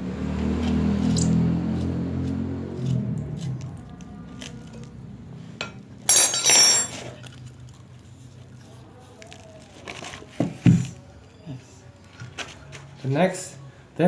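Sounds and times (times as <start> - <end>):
metal parts clinking and rattling: 6.1 - 7.2.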